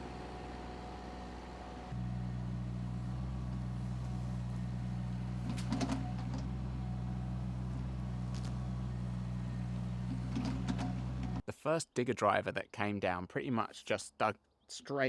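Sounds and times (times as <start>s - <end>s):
excavator engine running: 0.0s - 11.4s.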